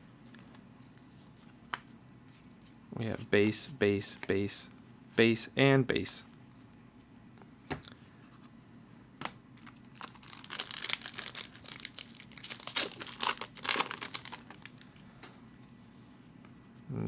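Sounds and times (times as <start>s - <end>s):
wrapper crinkling and tearing: 9.6s - 14.9s.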